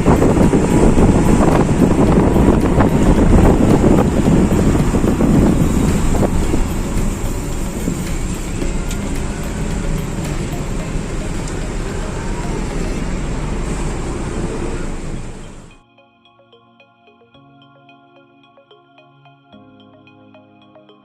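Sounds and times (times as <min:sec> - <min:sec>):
traffic on wet road: 0:00.0 - 0:15.7.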